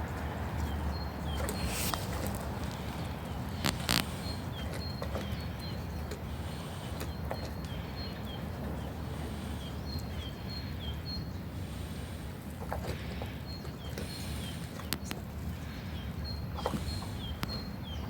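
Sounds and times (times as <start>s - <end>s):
small bird chirping: 12.8s - 18.0s.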